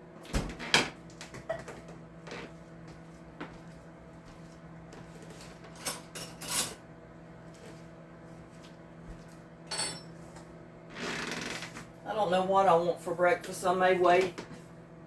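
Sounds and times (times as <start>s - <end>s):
low steady hum: 0.0s - 15.0s
dishes and utensils clattering: 5.7s - 6.8s, 9.7s - 10.2s.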